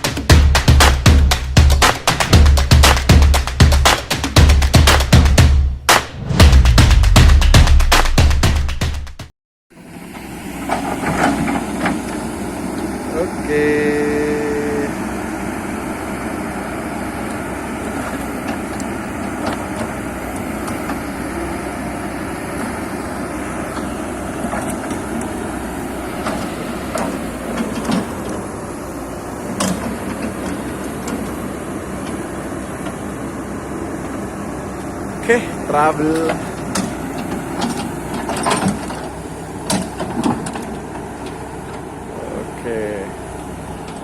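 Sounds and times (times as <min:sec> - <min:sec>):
heavy machinery running: 0:00.0 - 0:08.6, 0:09.8 - 0:44.0
sharp knocks: 0:00.0 - 0:09.3.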